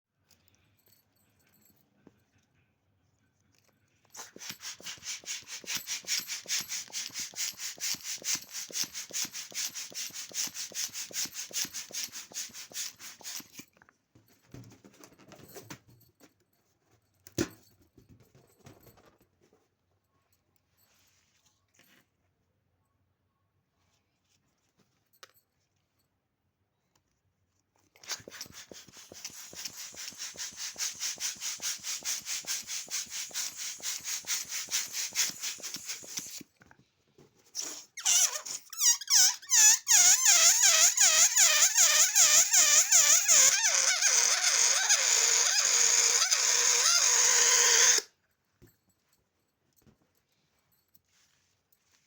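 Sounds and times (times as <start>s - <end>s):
balloon pump pulsing: 4.2s - 13.6s, 28.0s - 36.4s, 37.6s - 48.1s
balloon squealing: 37.6s - 48.1s.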